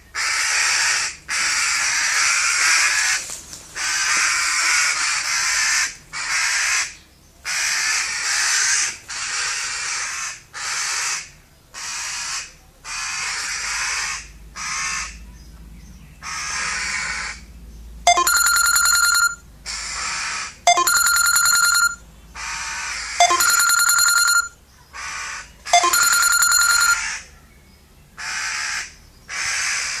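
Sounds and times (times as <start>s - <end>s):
harsh crow-like cawing: 0.2s - 3.1s, 3.8s - 15.1s, 28.2s - 30.0s
ringing pitched call: 18.1s - 19.4s, 20.7s - 22.0s, 23.2s - 24.5s, 25.7s - 27.2s.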